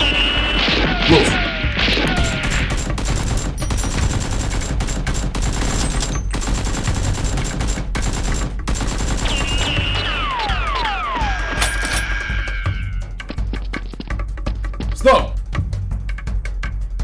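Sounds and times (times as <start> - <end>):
rapid gunfire: 0.5 - 10.9.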